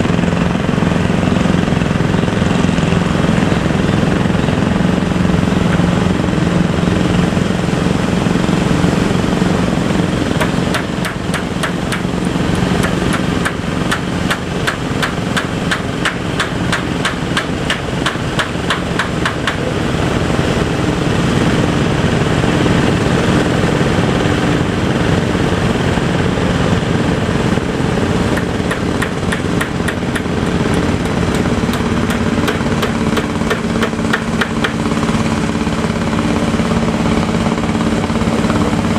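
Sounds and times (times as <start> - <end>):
boat engine running: 0.0 - 38.9
rapid knocking clatter: 10.0 - 19.7, 27.7 - 38.9.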